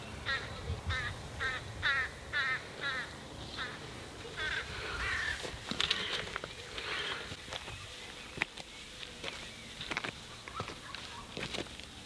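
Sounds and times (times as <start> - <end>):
bird giving harsh calls: 0.2 - 7.3.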